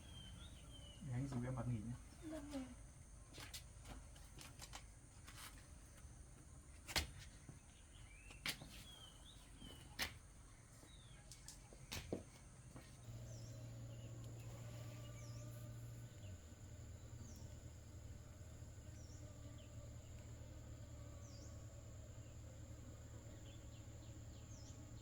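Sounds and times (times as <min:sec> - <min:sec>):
bird chirps: 0:00.0 - 0:01.6, 0:13.0 - 0:25.0
high insect drone: 0:13.0 - 0:25.0
low hum: 0:13.0 - 0:25.0.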